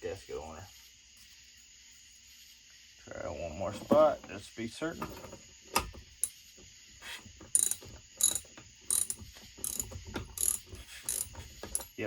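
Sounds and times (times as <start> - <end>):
socket ratchet clicking: 7.5 - 12.0.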